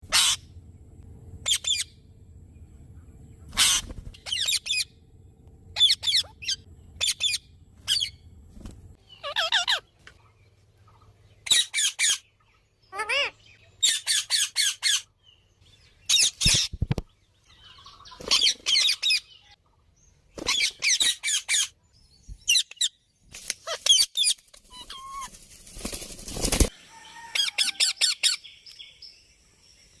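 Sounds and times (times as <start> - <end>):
parrot calling: 0.0 - 0.5, 1.4 - 1.9, 3.5 - 4.9, 5.8 - 8.2, 9.1 - 9.9, 12.8 - 15.1, 24.7 - 25.3.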